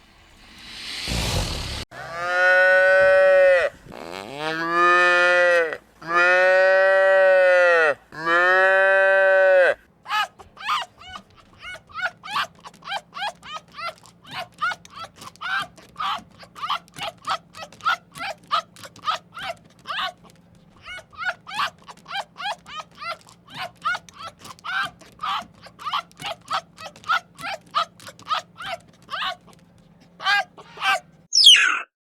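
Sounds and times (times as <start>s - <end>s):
cow mooing: 2.0s - 3.7s, 4.3s - 9.8s
high-pitched animal calls: 8.3s - 31.9s.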